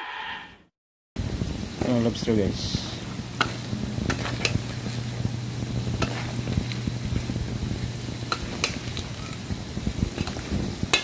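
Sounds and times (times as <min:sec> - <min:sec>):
food frying in hot oil: 0:01.2 - 0:11.0
metal spatula tapping pan: 0:10.2 - 0:11.0.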